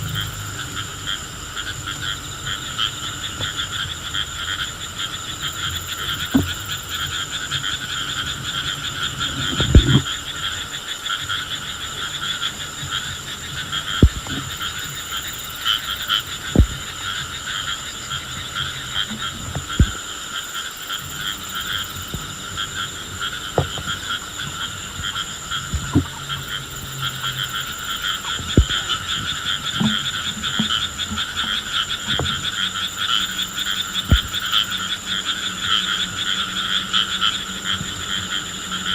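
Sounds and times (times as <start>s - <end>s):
chorus of calling frogs: 0.0s - 38.9s
short low pops or knocks: 6.3s - 6.6s, 9.6s - 10.1s, 14.0s - 14.6s, 16.5s - 16.9s, 19.1s - 20.0s, 28.4s - 29.0s, 34.1s - 34.4s.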